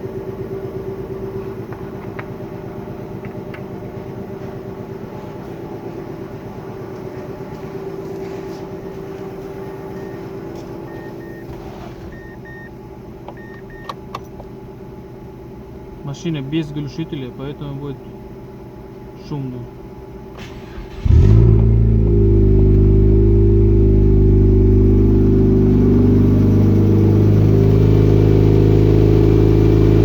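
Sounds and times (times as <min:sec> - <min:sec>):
car engine idling without muffler: 0:00.0 - 0:13.3, 0:14.0 - 0:30.0
short high beeps: 0:10.0 - 0:10.2, 0:10.9 - 0:11.5, 0:12.1 - 0:12.7.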